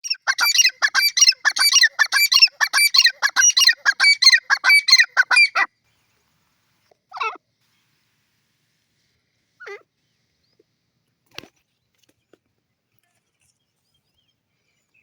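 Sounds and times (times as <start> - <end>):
francolin calling: 0.0 - 5.7.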